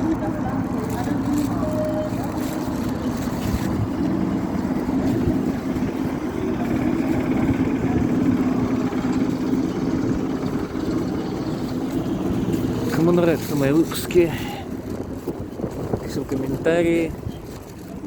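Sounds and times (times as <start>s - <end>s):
low even hum: 0.0s - 13.9s
train rumbling in motion: 0.0s - 17.7s.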